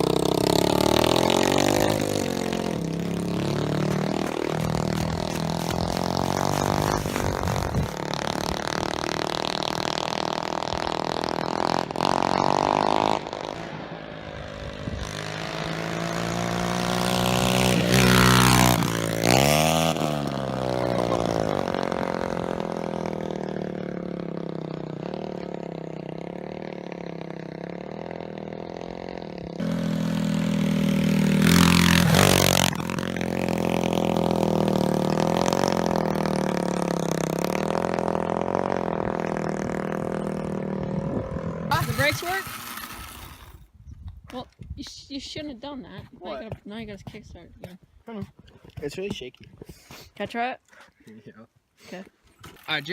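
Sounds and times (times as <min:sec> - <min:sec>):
motorbike engine revving: 0:00.0 - 0:43.7.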